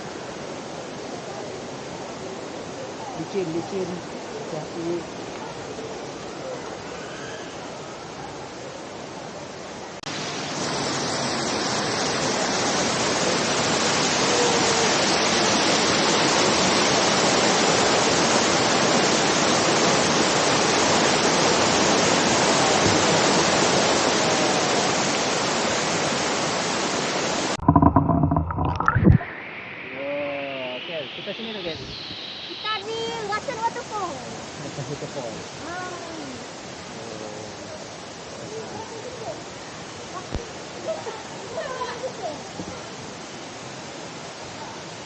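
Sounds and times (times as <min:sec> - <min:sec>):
waterfall roaring: 0:07.8 - 0:45.0
loud irregular thumps: 0:27.6 - 0:29.2.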